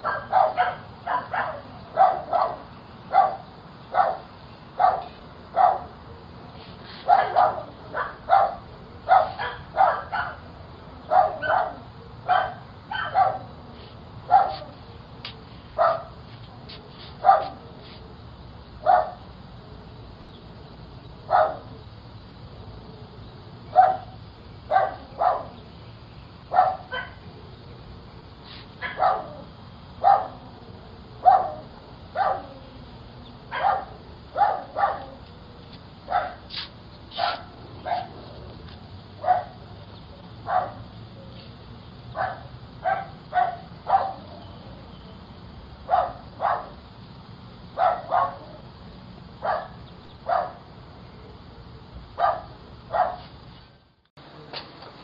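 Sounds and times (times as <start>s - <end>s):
dog barking: 0.0s - 5.9s, 7.0s - 10.5s, 11.1s - 13.5s, 14.3s - 14.7s, 15.8s - 16.2s, 17.2s - 17.6s, 18.8s - 19.2s, 21.3s - 21.7s, 23.7s - 25.6s, 26.5s - 27.2s, 28.8s - 30.4s, 31.2s - 32.6s, 33.5s - 35.2s, 36.1s - 36.4s, 37.1s - 38.1s, 39.2s - 39.6s, 40.4s - 40.8s, 42.2s - 44.3s, 45.9s - 46.8s, 47.8s - 48.6s, 49.4s - 50.6s, 52.2s - 53.3s.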